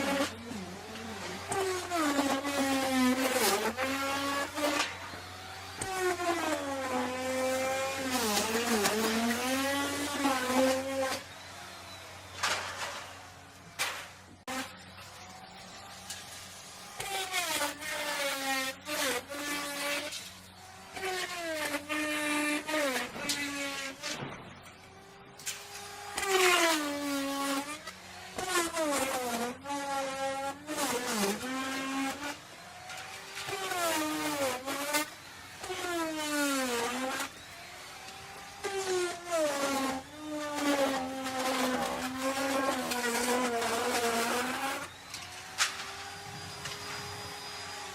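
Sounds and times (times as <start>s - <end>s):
wood router cutting wood: 0.0s - 47.9s.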